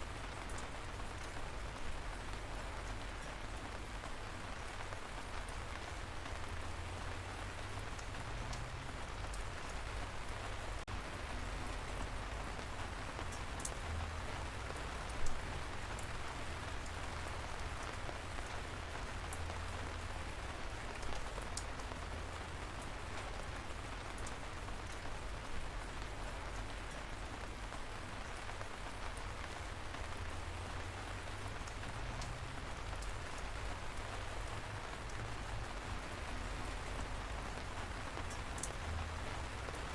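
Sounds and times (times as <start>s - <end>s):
light rain falling: 0.0s - 39.9s
single raindrops ticking: 31.6s - 39.9s.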